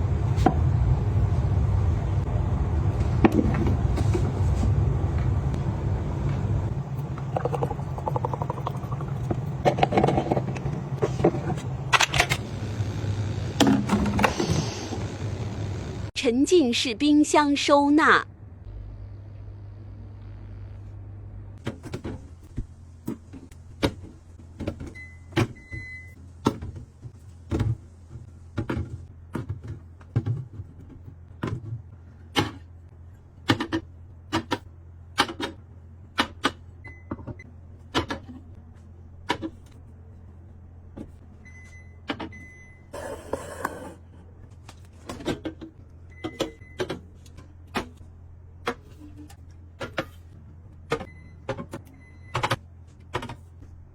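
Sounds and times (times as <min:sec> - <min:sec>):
refrigerator hum: 0:00.0 - 0:16.2, 0:17.8 - 0:53.9
containers clicking and knocking: 0:07.0 - 0:10.7.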